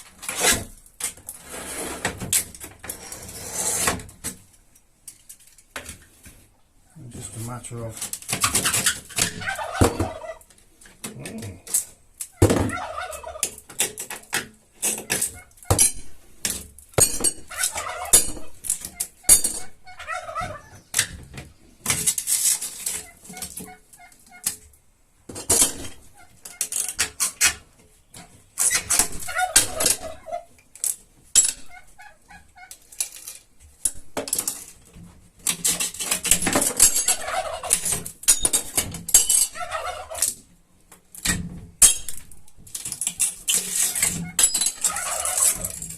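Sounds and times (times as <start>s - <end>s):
turkeys gobbling: 8.6s - 13.8s, 14.8s - 16.2s, 17.0s - 21.2s, 22.9s - 24.6s, 25.6s - 27.6s, 28.2s - 30.7s, 31.5s - 33.0s, 36.4s - 40.5s, 43.7s - 45.8s
glass clinking and cracking: 17.0s - 19.7s, 36.6s - 37.3s, 38.3s - 39.6s, 41.8s - 45.9s.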